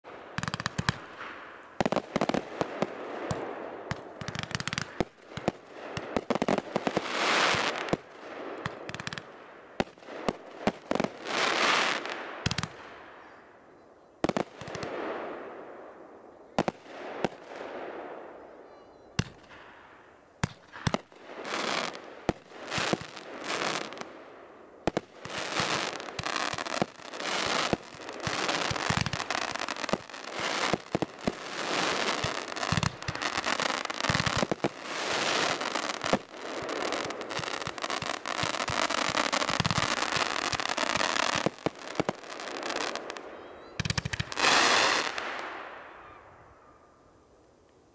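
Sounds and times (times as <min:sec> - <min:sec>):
firework crackling: 0:00.0 - 0:12.9, 0:20.4 - 0:45.9
firework bangs: 0:24.8 - 0:46.0.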